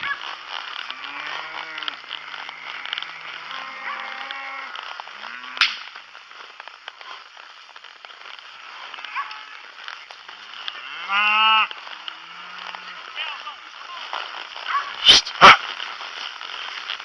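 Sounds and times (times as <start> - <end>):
sharp crack: 0.1 - 10.8, 11.6 - 17.0
cattle mooing: 0.9 - 5.6.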